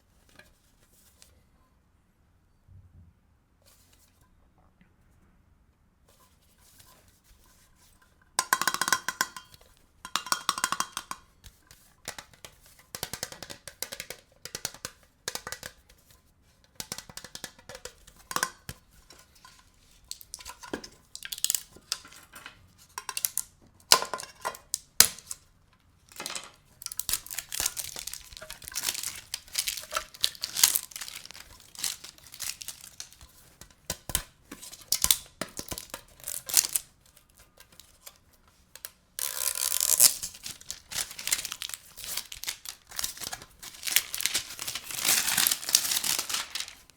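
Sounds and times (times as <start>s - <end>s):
box rustling and scraping: 26.9s - 33.5s, 39.8s - 46.9s.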